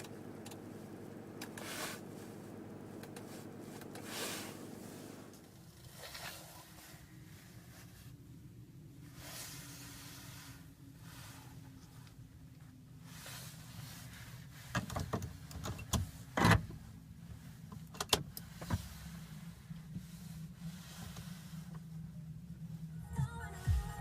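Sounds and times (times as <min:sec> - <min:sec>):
car low hum: 0:00.0 - 0:24.0.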